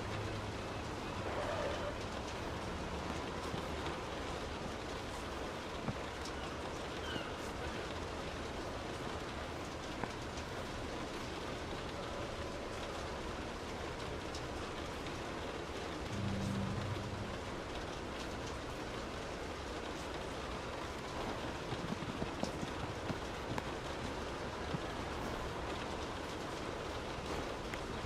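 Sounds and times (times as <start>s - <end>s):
rain falling: 0.0s - 28.0s
raindrops ticking: 0.0s - 28.0s
low rumble: 16.0s - 17.9s.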